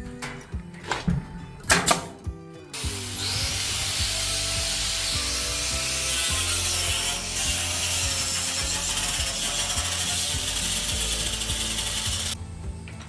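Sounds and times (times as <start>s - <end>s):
background music: 0.0s - 13.0s
power tool rasping on wood: 2.8s - 12.4s.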